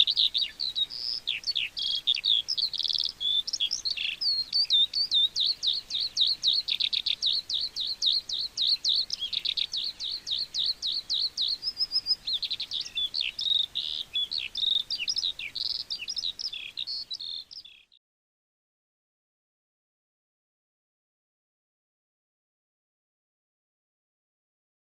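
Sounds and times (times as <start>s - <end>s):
skylark singing: 0.0s - 18.0s.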